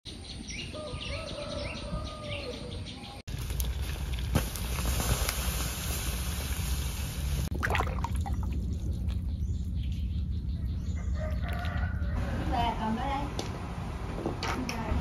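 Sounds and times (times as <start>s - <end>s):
small birds chirping: 8.2s - 12.8s.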